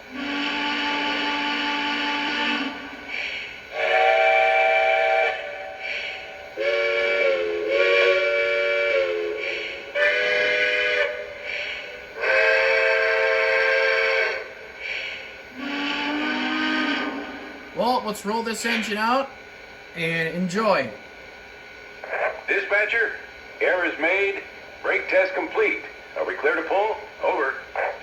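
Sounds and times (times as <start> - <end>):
model train steam whistle toots: 0.1 - 18.0.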